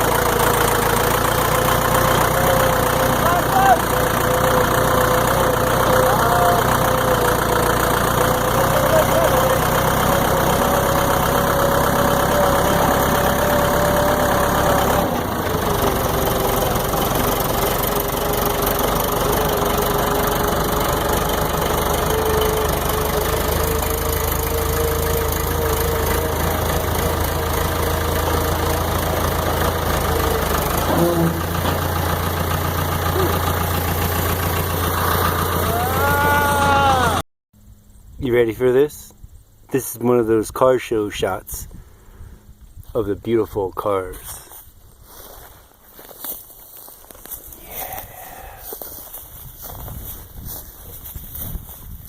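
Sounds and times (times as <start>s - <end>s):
tractor engine droning: 0.0s - 39.9s, 45.0s - 52.0s.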